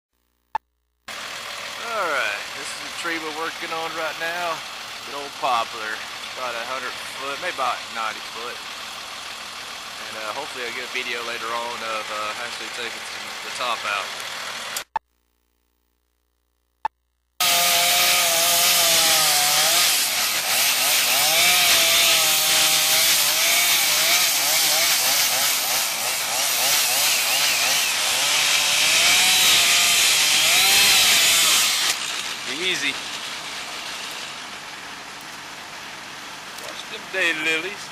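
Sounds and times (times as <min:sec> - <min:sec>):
chainsaw cutting wood: 0:06.0 - 0:14.9, 0:17.4 - 0:34.5.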